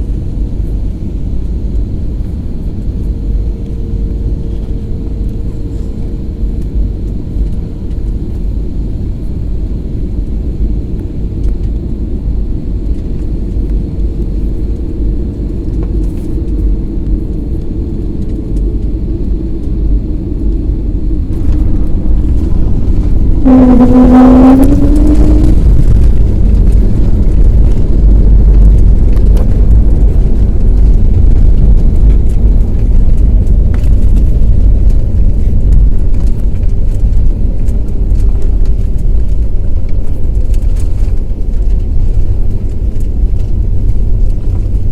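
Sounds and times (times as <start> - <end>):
airliner landing rumble: 0.0 - 44.9
short pitched tone: 21.4 - 26.1.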